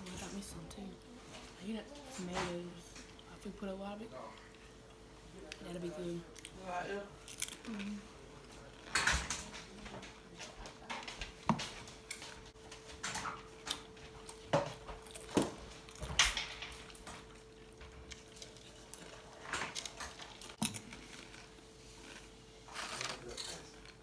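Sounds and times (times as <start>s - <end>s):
faint steady hum: 0.0s - 24.0s
crunching chips: 7.2s - 9.0s
dishes and utensils clinking: 8.8s - 12.3s.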